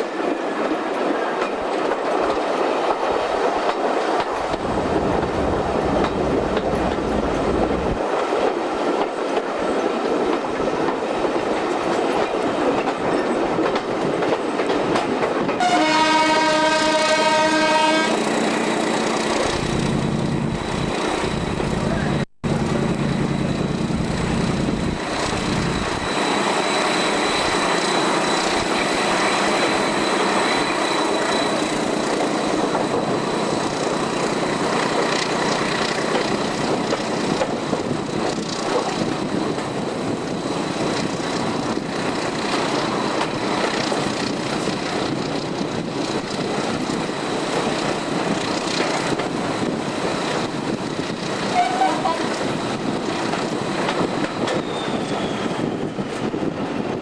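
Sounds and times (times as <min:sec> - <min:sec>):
wind rushing: 0:03.1 - 0:08.9, 0:35.7 - 0:57.0.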